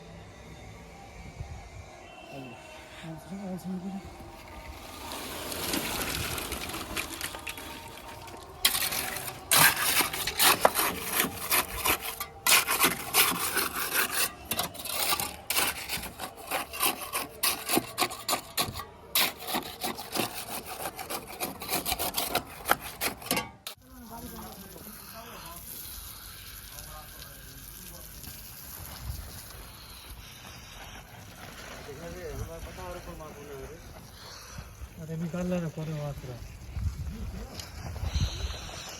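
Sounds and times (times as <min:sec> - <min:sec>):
hand tool rasping hard surface: 0:04.8 - 0:23.8.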